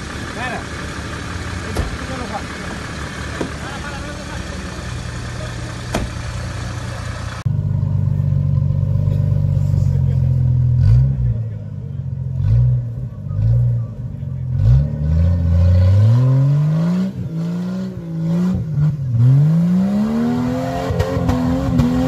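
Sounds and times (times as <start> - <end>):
engine revving up and down: 10.7 - 11.6, 12.3 - 22.0.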